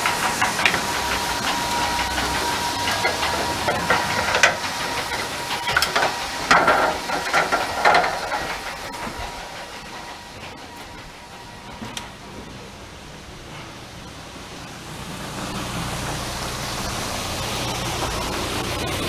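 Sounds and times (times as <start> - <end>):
knocks and clatters: 0.0 - 14.7
grain hissing through auger: 0.0 - 19.0.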